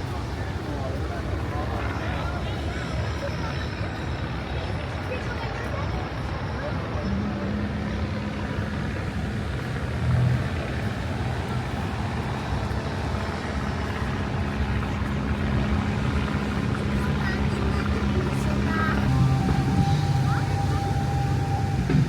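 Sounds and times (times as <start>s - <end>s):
outdoor noise: 0.0s - 22.0s
vehicle engine humming: 10.0s - 22.0s.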